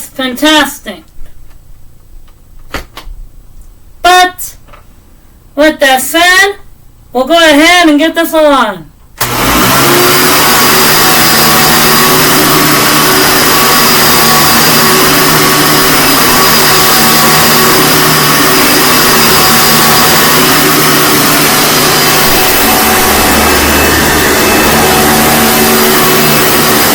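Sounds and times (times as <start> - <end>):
vacuum cleaner running: 9.2 - 26.9.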